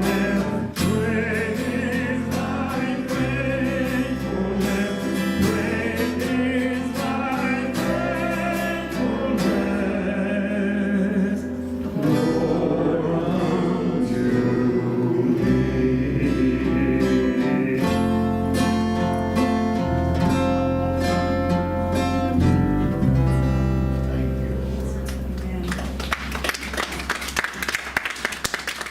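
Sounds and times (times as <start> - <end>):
voices singing: 0.0 - 19.4
strummed acoustic guitar: 0.0 - 26.0
low bass notes: 0.0 - 26.9.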